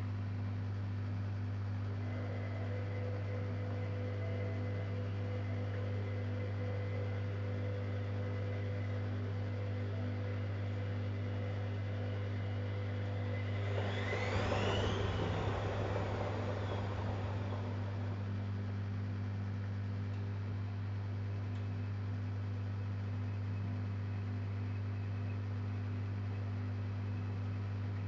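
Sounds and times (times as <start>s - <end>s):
washing machine humming: 0.0s - 28.0s
motor whine rising: 8.0s - 20.0s.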